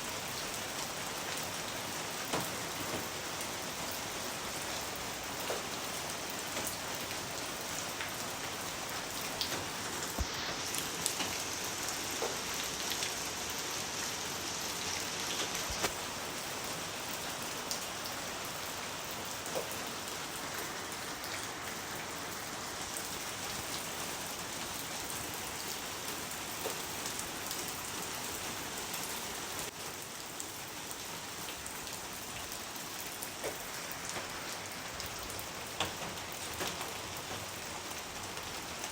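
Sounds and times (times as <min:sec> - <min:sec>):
steady rain on a surface: 0:00.0 - 0:38.9.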